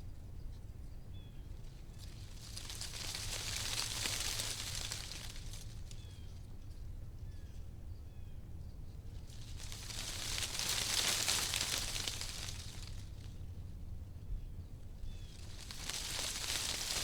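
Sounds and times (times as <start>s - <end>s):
wind rustling tree leaves: 1.4s - 6.7s, 9.0s - 14.2s, 14.8s - 17.0s.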